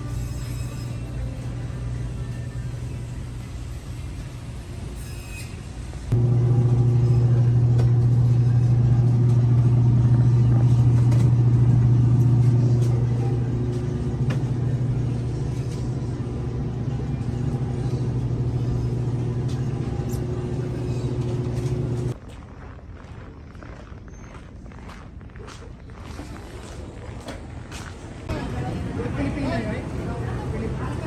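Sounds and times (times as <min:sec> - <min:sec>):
car engine humming: 0:06.1 - 0:22.2.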